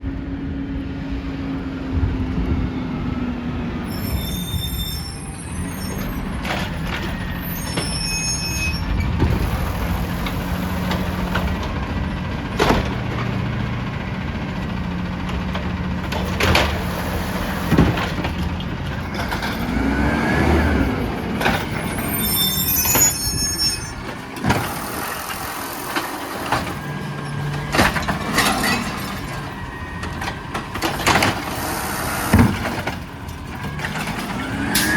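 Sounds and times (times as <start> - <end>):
trash truck engine running: 0.0 - 34.9
high-pitched squeals: 3.9 - 10.6, 19.1 - 32.9, 33.8 - 34.9
sharp knocks and bangs: 15.2 - 19.8, 30.0 - 34.9.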